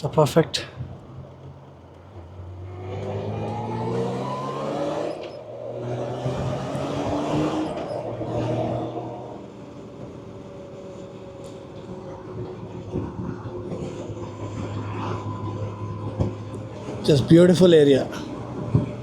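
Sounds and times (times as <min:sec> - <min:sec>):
motorcycle engine accelerating: 0:00.8 - 0:19.0.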